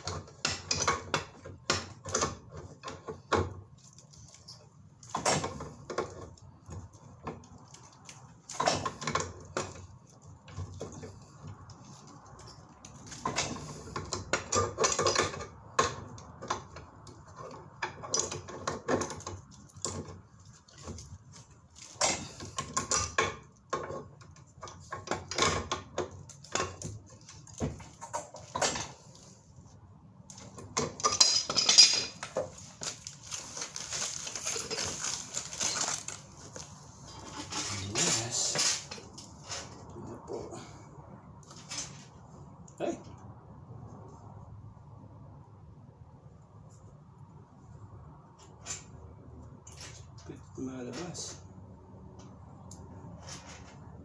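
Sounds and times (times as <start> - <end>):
metal pipes and tools clanking: 0.0 - 6.4, 7.0 - 9.9, 10.5 - 29.4, 30.3 - 40.0
grinding or scraping: 33.0 - 39.9.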